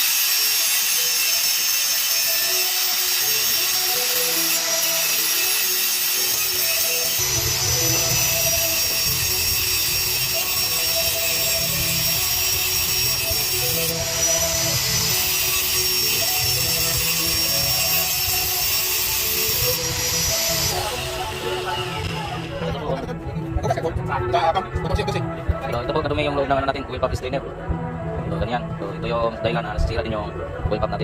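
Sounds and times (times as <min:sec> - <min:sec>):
background music with bass line: 0:07.0 - 0:31.0.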